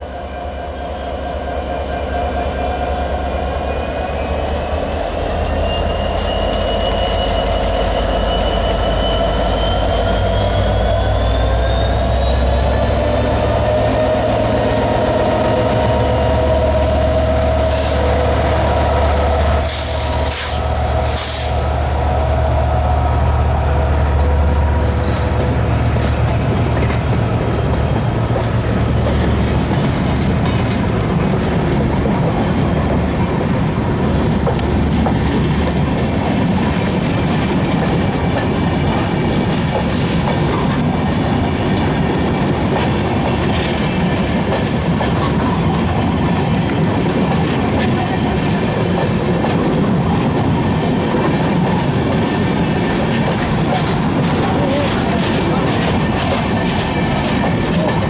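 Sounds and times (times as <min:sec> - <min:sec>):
locomotive engine drone: 0:00.1 - 0:58.0
train wheels clattering on rails: 0:04.1 - 0:58.0
hissing bursts: 0:19.6 - 0:21.9.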